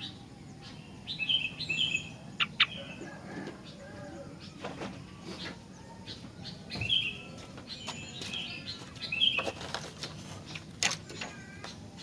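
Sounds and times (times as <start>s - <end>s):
bird chirping: 0.0s - 12.0s
rustling: 9.3s - 11.2s.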